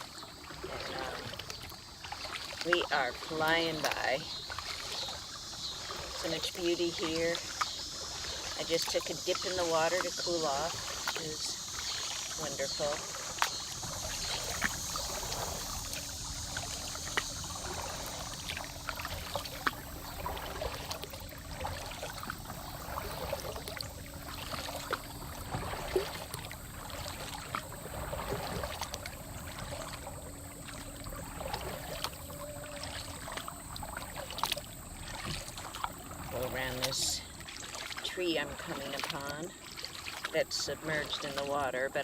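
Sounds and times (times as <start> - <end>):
water trickling and lapping: 0.0 - 42.0.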